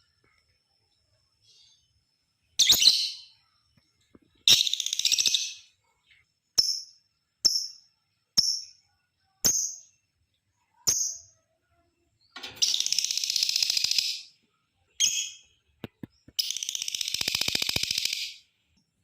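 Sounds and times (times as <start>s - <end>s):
lovebird chirps: 1.3s - 3.7s, 4.3s - 5.8s, 6.5s - 10.1s, 10.8s - 18.5s
lovebird chattering trill: 16.4s - 18.4s.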